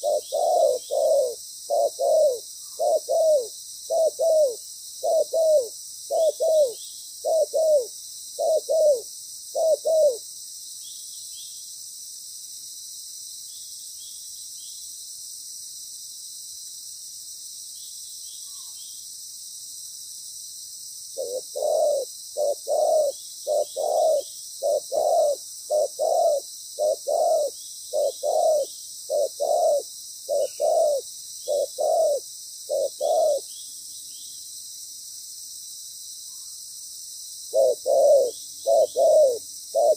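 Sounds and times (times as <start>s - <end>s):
dove cooing: 0.0s - 10.2s, 21.2s - 33.5s, 37.5s - 39.9s.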